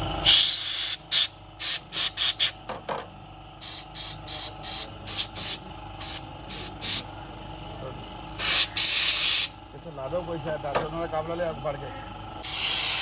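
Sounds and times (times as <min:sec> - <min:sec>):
spray nozzle hissing bursts: 0:08.4 - 0:09.5, 0:12.4 - 0:13.0.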